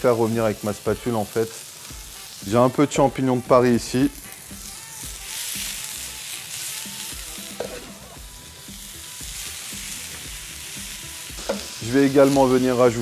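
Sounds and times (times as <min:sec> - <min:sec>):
oil sizzling on hot plate: 0:00.0 - 0:13.0.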